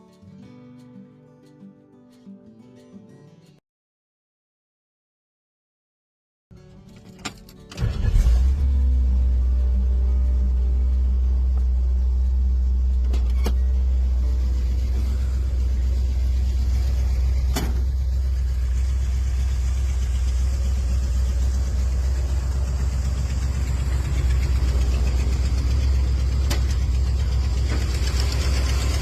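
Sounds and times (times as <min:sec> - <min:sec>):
car engine idling: 0:07.8 - 0:29.0.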